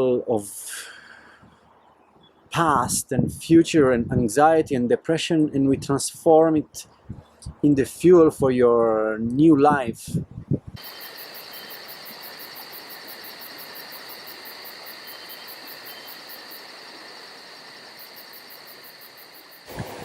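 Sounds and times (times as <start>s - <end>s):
crickets chirping: 10.8s - 20.0s
steady high hum and hiss: 10.8s - 20.0s.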